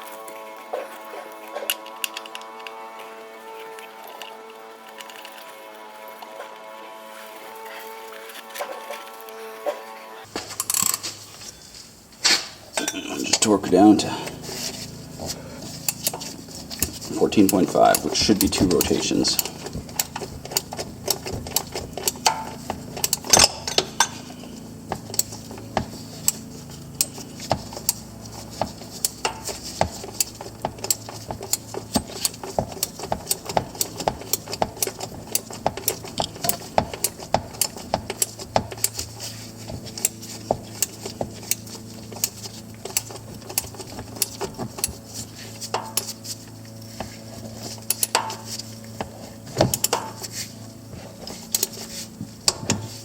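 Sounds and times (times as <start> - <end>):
ratchet wrench clicking: 10.6 - 11.1, 15.6 - 50.5.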